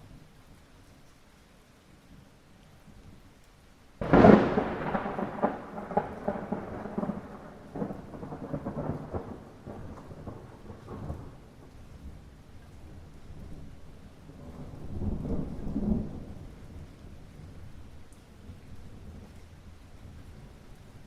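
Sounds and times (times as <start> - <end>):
light rain: 0.0 - 21.0
thunderclap cracking and rolling: 4.0 - 12.3, 14.4 - 17.5.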